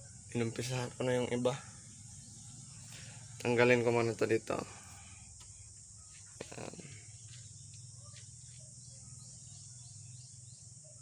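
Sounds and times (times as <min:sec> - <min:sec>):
insect hiss: 0:00.0 - 0:11.0
small bird chirps: 0:05.6 - 0:11.0.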